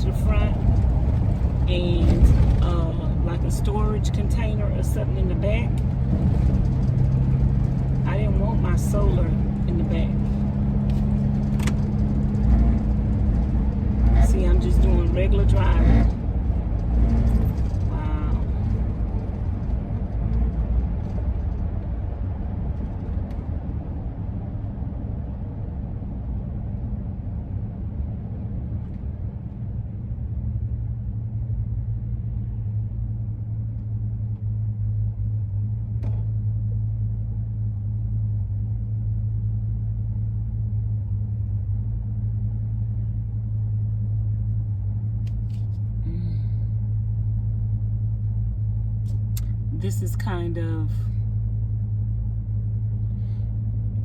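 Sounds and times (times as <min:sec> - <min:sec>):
roof rack howling in wind: 0:00.0 - 0:35.5
road rumble: 0:00.0 - 0:54.0.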